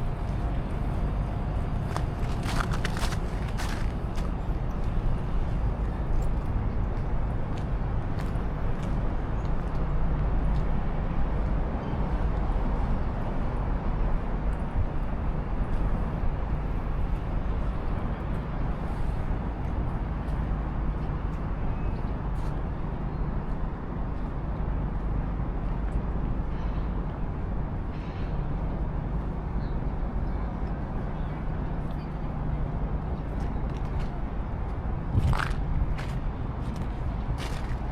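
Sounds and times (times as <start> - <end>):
low traffic rumble: 0.0 - 37.9
urban background noise: 0.0 - 37.9.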